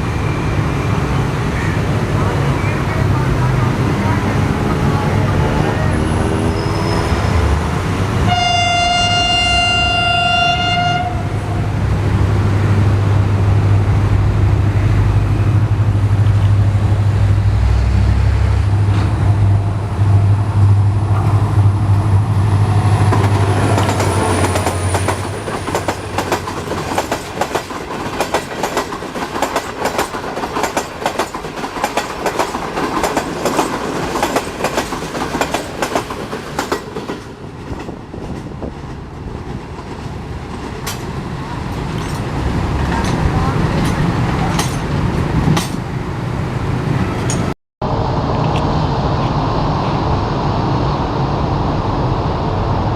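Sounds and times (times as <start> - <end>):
train wheels clattering over rail joints: 23.0 - 45.9
locomotive engine deep drone: 41.9 - 52.9.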